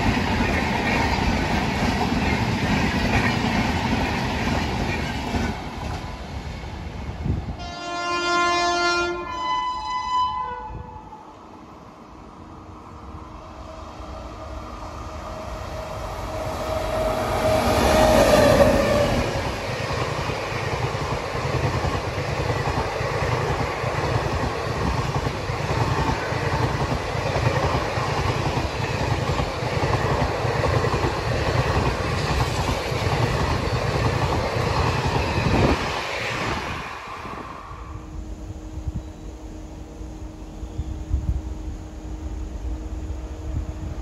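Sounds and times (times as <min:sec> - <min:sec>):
locomotive horn: 0:07.6 - 0:11.2
train wheels clattering over rail joints: 0:19.4 - 0:36.7.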